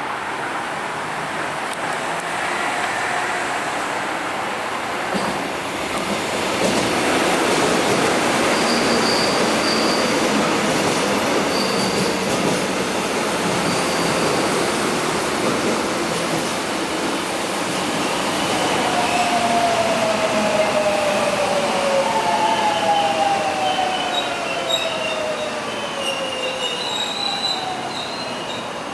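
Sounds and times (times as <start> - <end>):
train wheels rumbling on rail: 1.1 - 28.9
high wheel squeals: 8.4 - 10.2, 11.4 - 12.0, 22.4 - 28.9.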